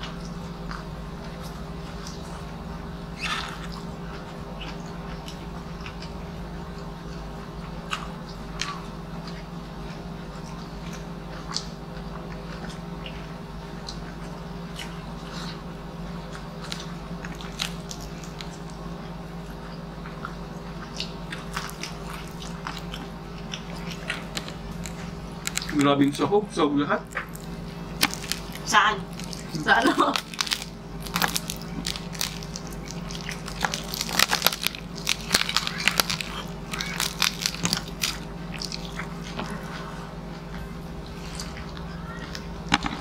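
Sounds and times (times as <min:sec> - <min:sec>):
person chewing food: 0:00.0 - 0:26.2, 0:27.1 - 0:43.0
steady low hum: 0:00.0 - 0:43.0.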